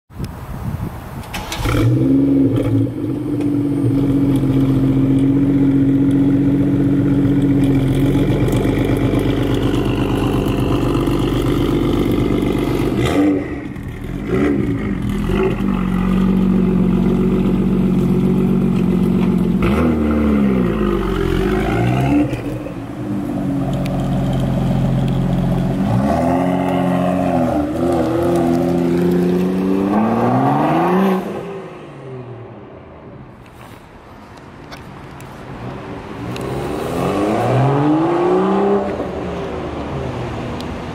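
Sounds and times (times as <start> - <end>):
car engine revving through exhaust: 1.6 - 31.5.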